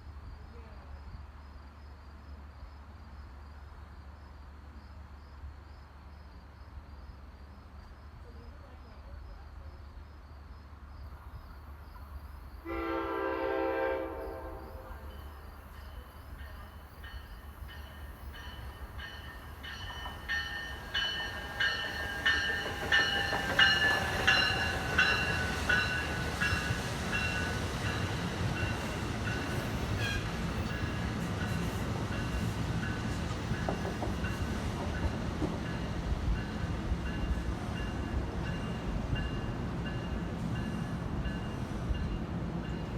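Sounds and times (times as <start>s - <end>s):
train rumble: 0.0s - 42.9s
train whine: 12.0s - 42.9s
train horn blast: 12.6s - 15.1s, 30.0s - 30.4s
train wheels clicking over rail joints: 15.6s - 42.9s.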